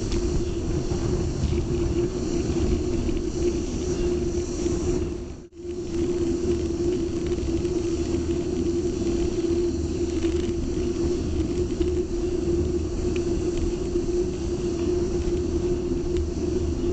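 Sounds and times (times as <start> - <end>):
cicadas droning: 0.0 - 16.9
constant hum: 0.0 - 16.9
low rumble: 0.0 - 16.9.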